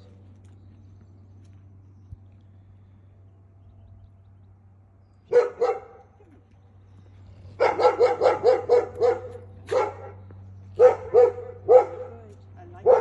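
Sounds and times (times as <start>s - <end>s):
dog barking: 5.3s - 6.0s, 7.6s - 10.2s, 10.8s - 13.0s.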